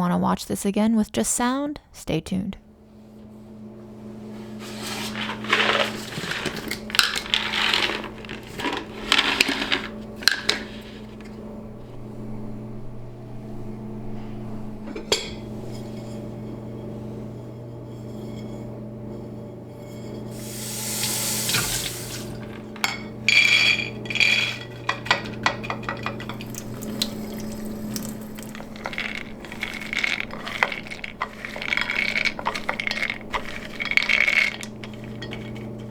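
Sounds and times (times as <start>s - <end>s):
peanuts rattling on a plate: 4.9s - 11.3s, 20.4s - 35.9s
low hum: 10.0s - 20.8s, 21.4s - 35.9s.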